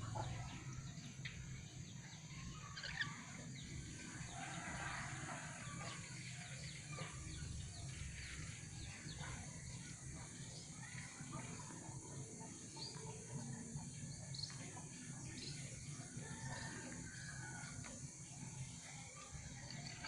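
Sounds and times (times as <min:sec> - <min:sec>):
birds chirping: 0:00.0 - 0:20.0
steady low hum: 0:00.0 - 0:20.0.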